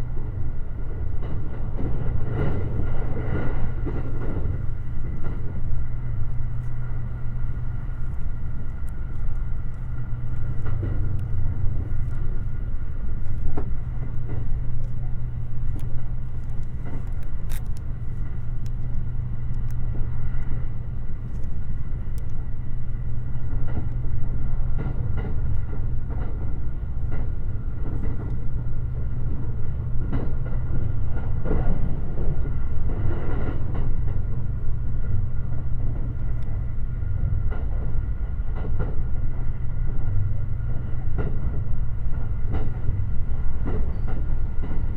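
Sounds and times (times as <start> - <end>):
train rumble: 0.0 - 44.9.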